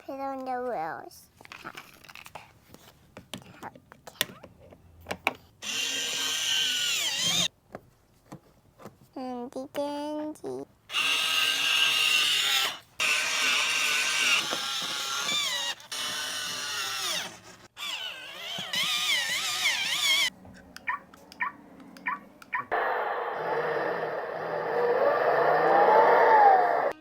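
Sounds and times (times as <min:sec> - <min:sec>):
toy drill whirring: 0:05.6 - 0:07.5, 0:10.9 - 0:20.3, 0:22.7 - 0:27.0.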